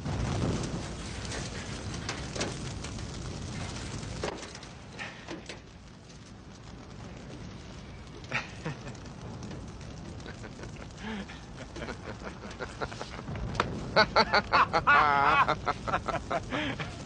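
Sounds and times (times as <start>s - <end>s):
man laughing hard: 10.3s - 13.3s, 14.0s - 17.0s.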